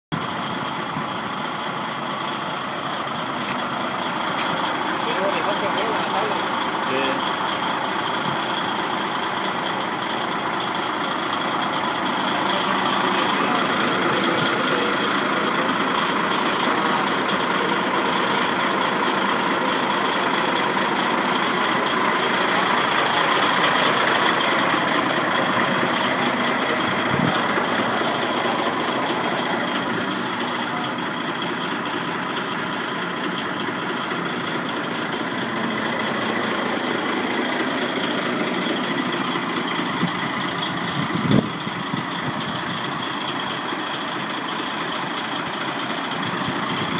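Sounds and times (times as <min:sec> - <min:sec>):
truck diesel engine idling: 0:00.1 - 0:46.9.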